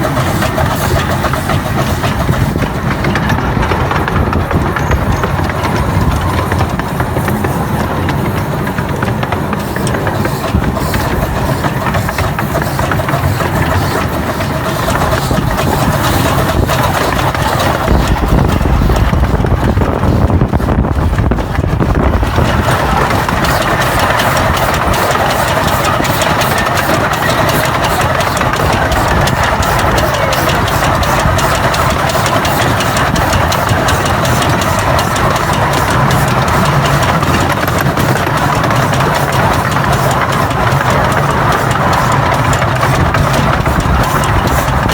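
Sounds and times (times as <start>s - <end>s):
locomotive rhythmic beat: 0.0s - 44.9s.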